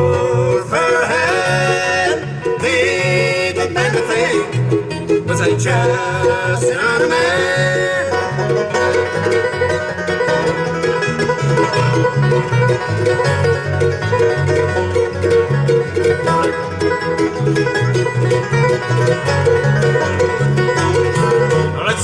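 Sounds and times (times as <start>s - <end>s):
banjo: 0.0s - 22.0s
bass guitar: 0.0s - 22.0s
guitar: 0.0s - 22.0s
mandolin: 0.0s - 22.0s.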